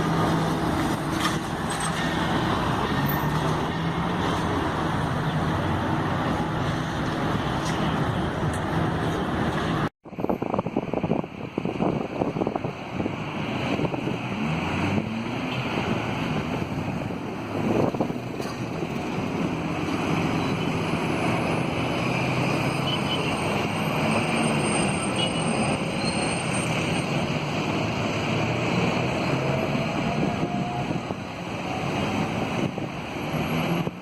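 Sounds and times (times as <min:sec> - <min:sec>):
road traffic noise: 0:00.0 - 0:34.0
wind on microphone: 0:10.1 - 0:22.6, 0:28.3 - 0:34.0.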